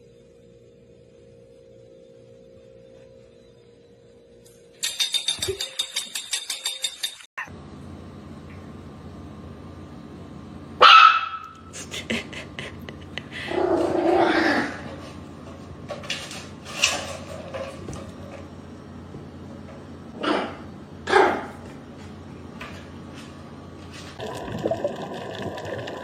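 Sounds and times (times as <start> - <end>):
steady low hum: 0.0 - 26.0
dog barking: 10.8 - 11.6, 20.2 - 21.5.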